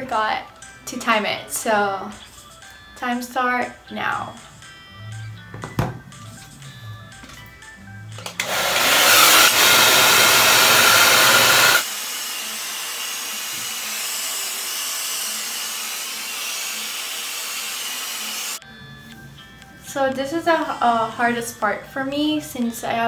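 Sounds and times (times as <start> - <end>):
hair dryer blowing: 8.3 - 18.6.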